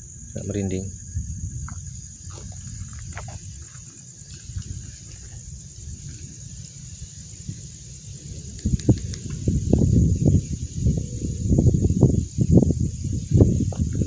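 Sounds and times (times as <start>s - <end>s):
crickets chirring: 0.0s - 14.0s
faint clicks: 8.5s - 9.4s.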